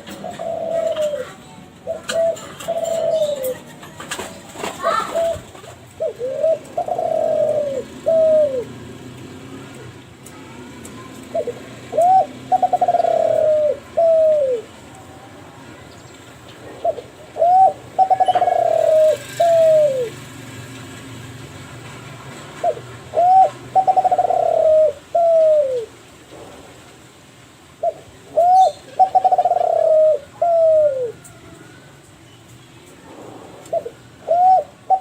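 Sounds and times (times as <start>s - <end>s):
dove cooing: 0.0s - 8.9s, 11.3s - 15.3s, 16.7s - 20.2s, 22.6s - 26.0s, 27.8s - 31.8s, 33.6s - 35.0s.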